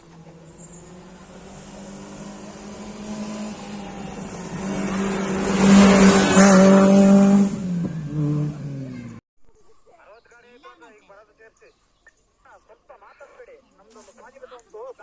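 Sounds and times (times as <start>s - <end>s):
rally car engine passing: 0.0s - 9.2s.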